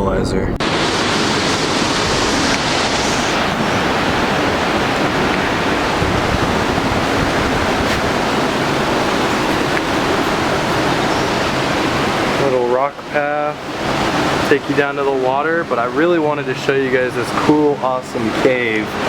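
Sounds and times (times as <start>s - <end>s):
river water rushing over boulders: 0.6s - 19.0s.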